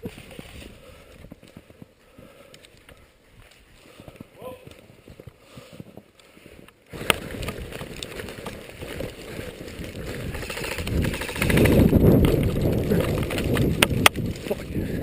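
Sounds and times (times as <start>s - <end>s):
movement rumbling on microphone: 6.9s - 15.0s
fast rattle: 7.2s - 14.4s.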